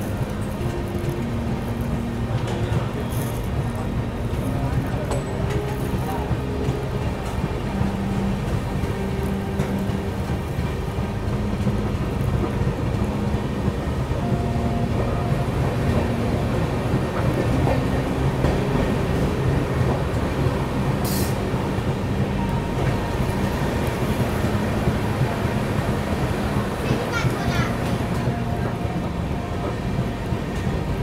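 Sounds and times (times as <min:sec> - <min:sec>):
train coach rumbling at speed: 0:00.0 - 0:31.0.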